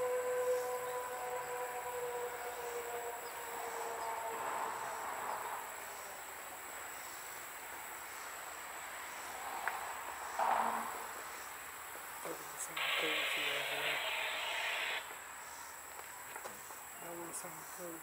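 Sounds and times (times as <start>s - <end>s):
locomotive chime horn: 0.0s - 5.6s
high insect buzz: 0.0s - 7.4s, 8.1s - 15.8s
train rolling on rails: 0.6s - 17.0s
burst of noise: 12.7s - 15.1s.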